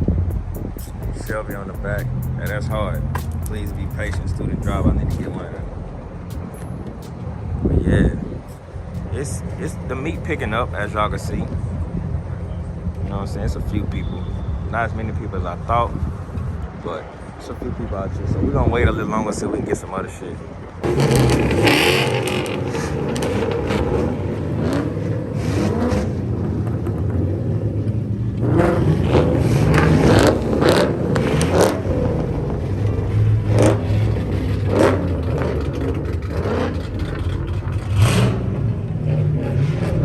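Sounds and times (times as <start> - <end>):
car engine revving: 0.0 - 13.8, 20.8 - 40.0
sharp knocks: 0.3 - 3.7.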